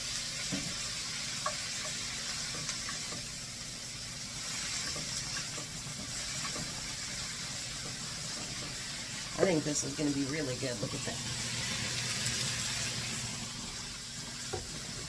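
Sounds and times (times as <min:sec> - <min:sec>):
food sizzling in a skillet: 0:00.0 - 0:15.0.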